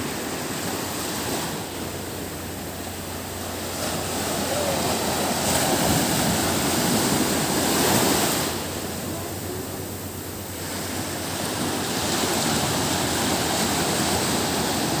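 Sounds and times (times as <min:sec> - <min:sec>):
sea waves washing ashore: 0:00.0 - 0:15.0.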